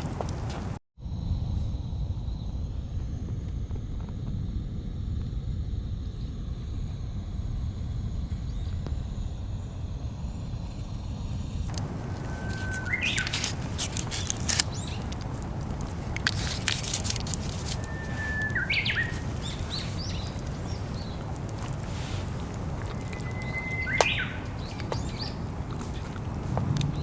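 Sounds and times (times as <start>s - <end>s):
low outdoor rumble: 0.0s - 27.0s
sharp crackles and clicks: 10.4s - 27.0s
rising bird chirp: 11.7s - 15.2s, 16.4s - 26.2s.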